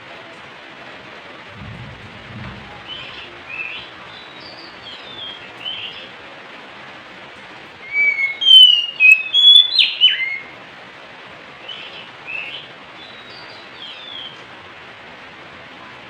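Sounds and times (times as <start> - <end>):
steady hiss: 0.0 - 16.0
bird singing whistled notes: 7.8 - 10.5.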